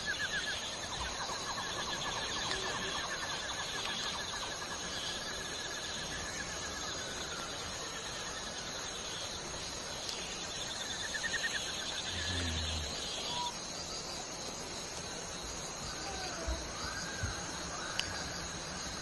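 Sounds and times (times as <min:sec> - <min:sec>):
insects buzzing: 0:00.0 - 0:19.0
gliding whistled bird notes: 0:10.3 - 0:14.1.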